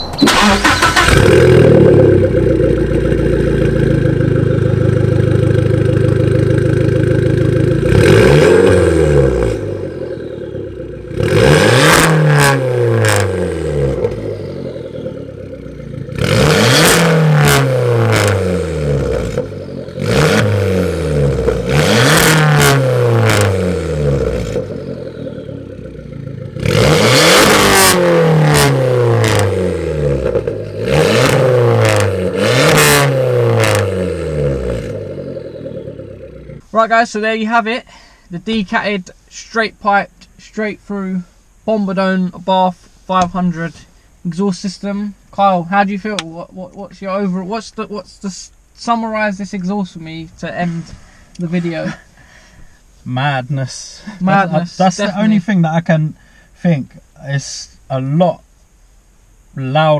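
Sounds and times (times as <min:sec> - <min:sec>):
car engine revving: 0:00.0 - 0:36.7
exhaust cracks: 0:00.0 - 0:37.6.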